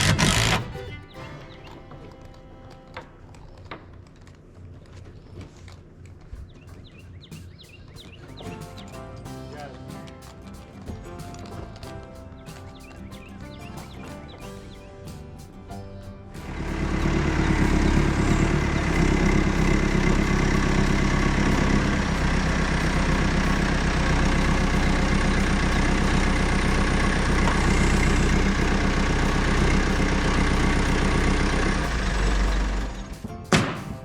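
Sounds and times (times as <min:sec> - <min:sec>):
engine humming steadily: 0:00.0 - 0:03.9, 0:08.2 - 0:33.3.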